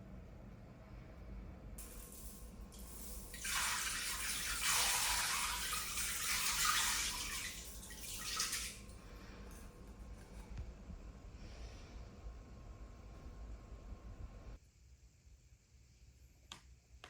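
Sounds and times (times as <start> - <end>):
water running: 1.8 - 11.2.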